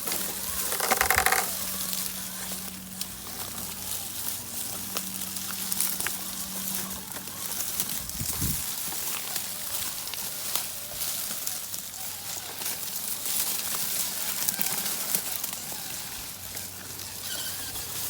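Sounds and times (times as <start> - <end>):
rock and grit crunching: 0.0 - 18.0.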